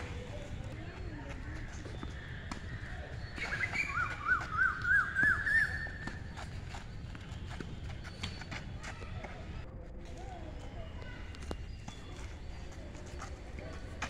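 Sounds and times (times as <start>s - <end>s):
bird calling rising notes: 3.3s - 6.0s.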